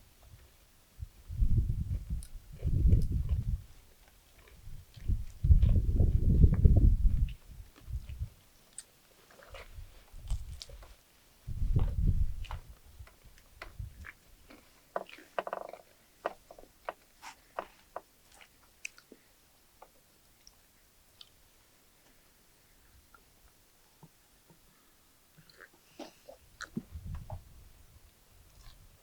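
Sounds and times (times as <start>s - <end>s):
person chewing crispy food: 3.0s - 5.8s, 8.7s - 10.9s, 13.4s - 19.2s.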